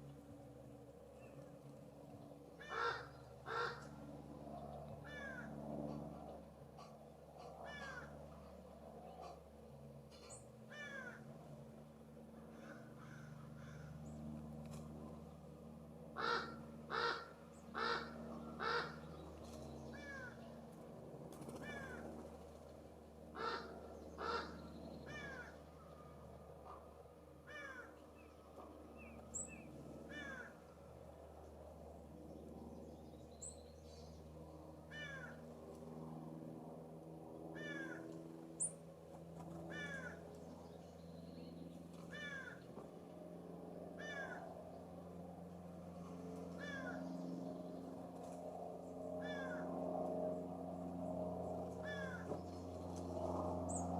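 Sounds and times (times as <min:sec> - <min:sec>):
jay harsh raspy calls: 0:02.6 - 0:03.8, 0:16.2 - 0:19.0, 0:23.4 - 0:25.5.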